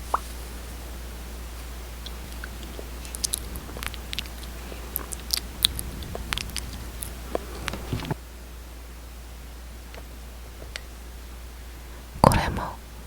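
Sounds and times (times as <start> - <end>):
wet lip smacks and clicks: 0.0 - 0.4, 2.0 - 8.2, 9.9 - 10.9.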